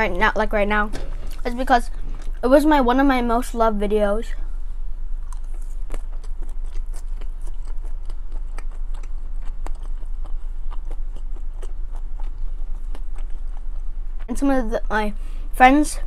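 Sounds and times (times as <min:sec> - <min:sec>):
low hum: 0:00.0 - 0:16.0
wet mouth chewing: 0:01.2 - 0:02.4, 0:05.2 - 0:14.3.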